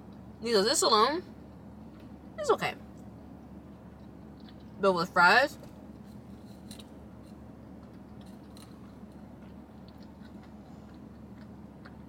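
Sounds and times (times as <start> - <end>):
steady low hum: 0.0 - 12.0
quiet chewing: 3.7 - 4.8, 5.6 - 12.0
faint crunches: 5.6 - 12.0.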